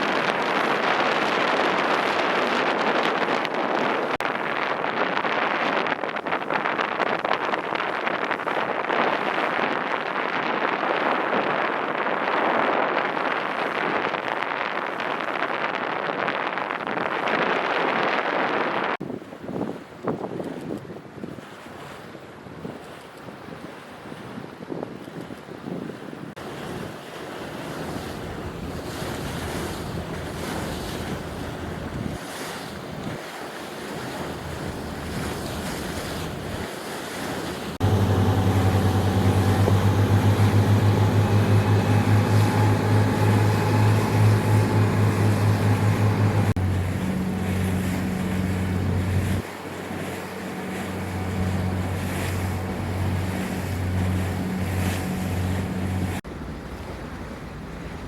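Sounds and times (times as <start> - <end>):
wind buffeting microphone: 0.0 - 58.0
ship engine low hum: 25.0 - 58.0.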